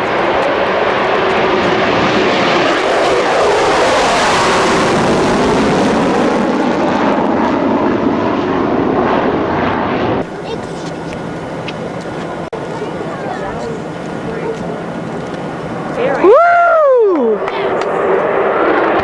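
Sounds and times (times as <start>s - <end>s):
jet aircraft passing: 0.0s - 19.0s.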